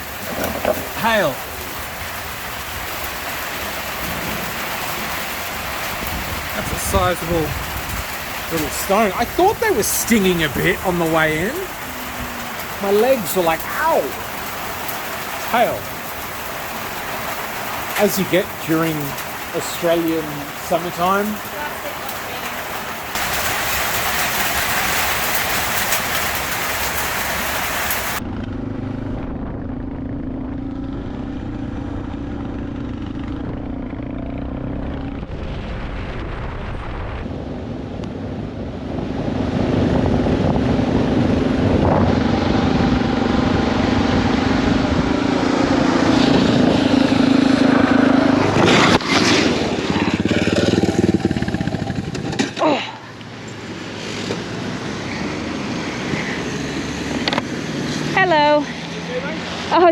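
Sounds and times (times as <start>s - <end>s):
hail and rain hissing: 0.0s - 28.2s, 43.2s - 54.4s
motorcycle engine running: 28.2s - 35.3s, 41.0s - 54.6s.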